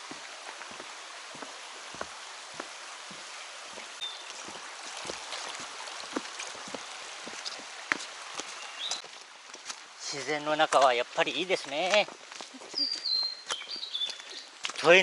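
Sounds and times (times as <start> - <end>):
footsteps on forest trail: 0.0 - 15.0
mountain stream flowing: 0.0 - 15.0
high bird chirp: 12.7 - 14.5.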